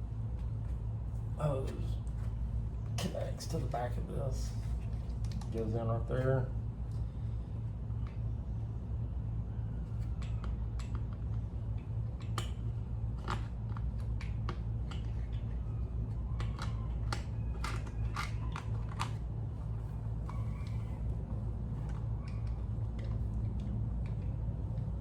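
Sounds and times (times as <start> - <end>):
steady low hum: 0.0 - 25.0
plastic parts clicking and snapping: 13.2 - 19.3.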